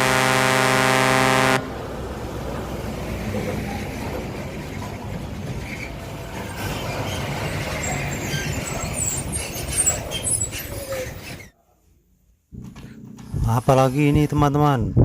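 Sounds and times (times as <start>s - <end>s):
truck engine and road rumble: 0.0s - 11.6s.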